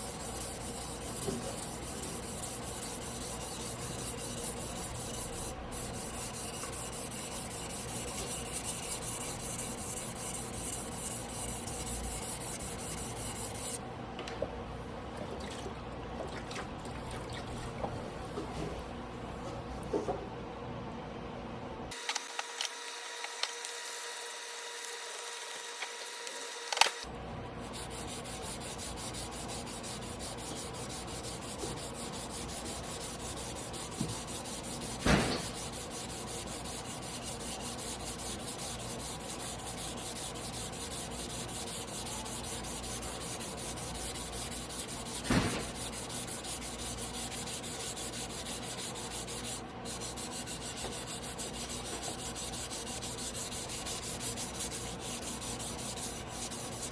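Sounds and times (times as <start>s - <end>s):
knife grinding on whetstone: 0.0s - 13.8s, 27.7s - 56.9s
sharp knocks: 35.0s - 35.6s, 45.2s - 45.8s.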